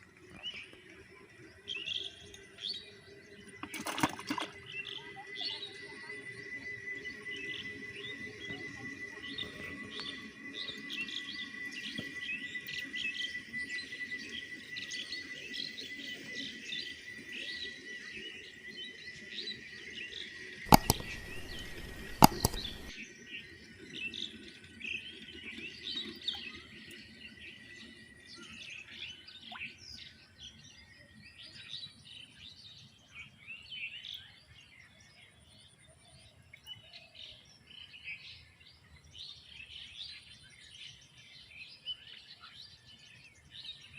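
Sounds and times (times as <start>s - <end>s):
small birds chirping chorus: 0.0s - 43.9s
sharp clicks: 20.7s - 23.0s.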